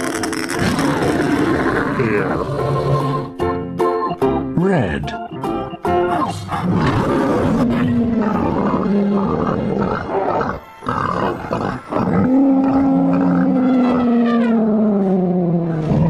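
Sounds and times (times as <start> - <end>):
bear roaring: 0.6 - 3.3, 6.1 - 16.0.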